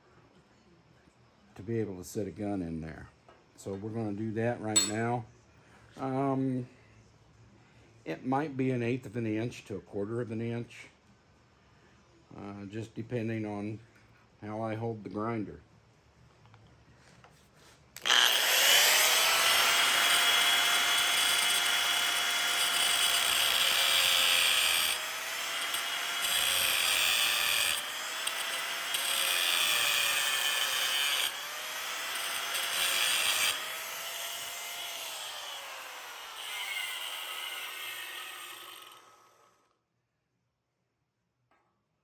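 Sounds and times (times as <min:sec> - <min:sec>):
angle grinder cutting metal: 0:18.0 - 0:39.6.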